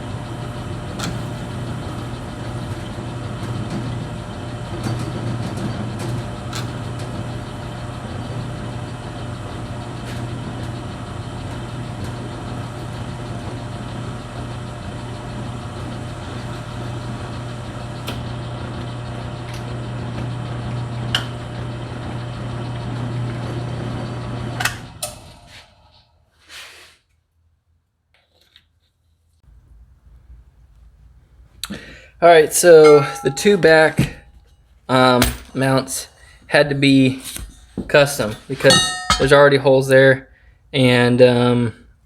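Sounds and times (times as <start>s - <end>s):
motor humming: 0.0s - 26.0s.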